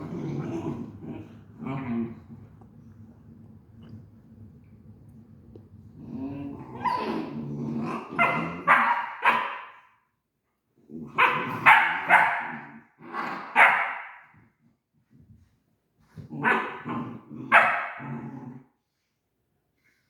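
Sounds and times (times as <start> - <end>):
large dog grumbling and barking: 0.0 - 2.6, 5.8 - 8.8.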